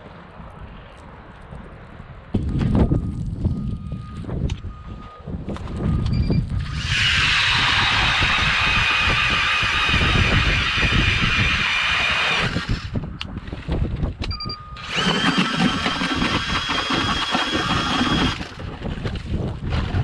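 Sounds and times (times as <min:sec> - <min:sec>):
wind noise on microphone: 0:00.0 - 0:20.0
ice auger motor whine: 0:06.6 - 0:12.9, 0:14.8 - 0:18.8.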